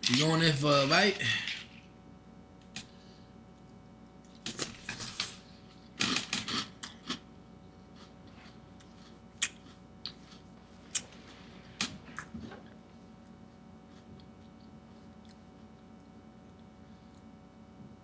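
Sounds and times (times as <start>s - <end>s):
crunchy cereal being chewed: 4.2s - 12.8s, 13.8s - 17.4s.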